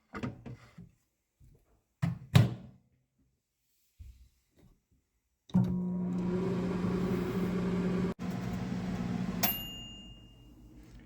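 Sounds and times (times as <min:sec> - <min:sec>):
microwave oven humming: 0:05.6 - 0:11.0
microwave chime: 0:05.8 - 0:10.9.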